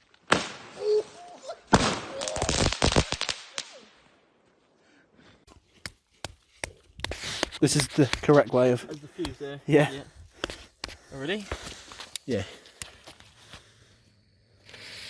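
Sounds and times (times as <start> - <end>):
firework hissing crackling burst: 1.8 - 3.8, 14.5 - 15.0.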